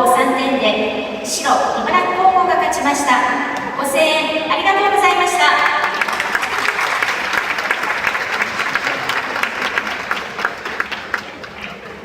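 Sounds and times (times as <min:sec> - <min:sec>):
spectators applauding: 0:05.6 - 0:12.0.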